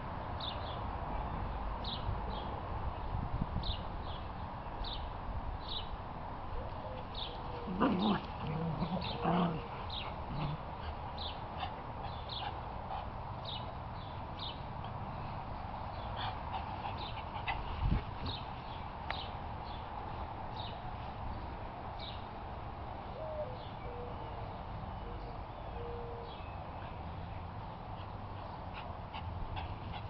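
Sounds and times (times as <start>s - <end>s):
small birds chirping: 6.7s - 22.3s.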